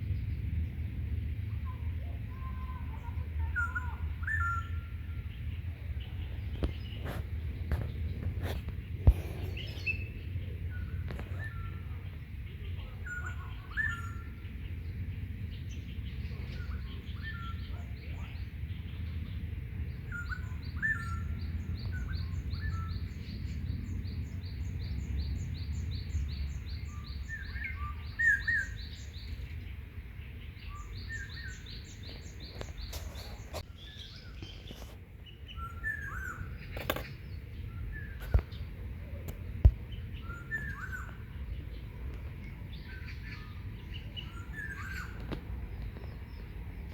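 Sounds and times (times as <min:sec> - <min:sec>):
steady low rumble: 0:00.0 - 0:28.1, 0:36.4 - 0:46.9
small birds chirping: 0:00.0 - 0:46.9.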